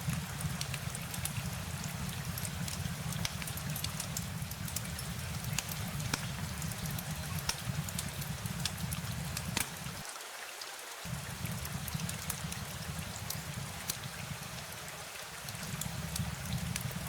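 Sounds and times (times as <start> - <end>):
steady rain: 0.0 - 17.0
low rumble: 11.1 - 14.8.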